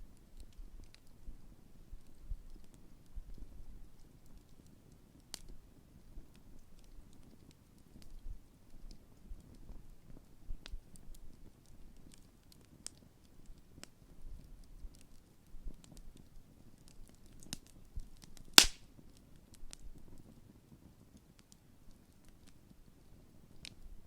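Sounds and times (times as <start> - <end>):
campfire crackling and popping: 18.6 - 18.8
loud sharp pop: 18.6 - 18.8.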